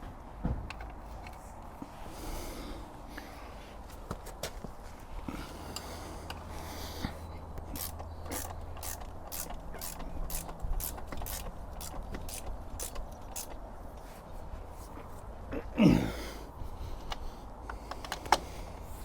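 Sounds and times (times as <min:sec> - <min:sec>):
ratchet clicking: 0:07.7 - 0:13.6.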